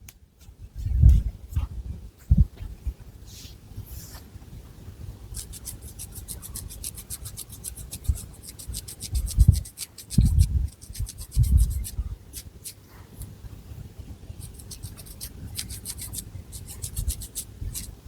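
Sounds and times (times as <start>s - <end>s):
fingernails scratching hair: 5.3s - 12.8s, 14.4s - 17.9s.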